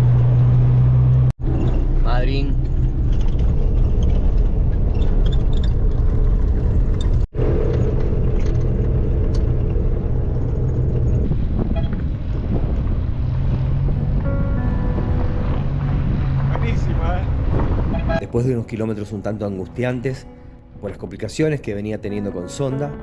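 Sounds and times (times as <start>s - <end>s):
van engine rumble: 0.0s - 18.4s
road noise: 0.0s - 23.0s.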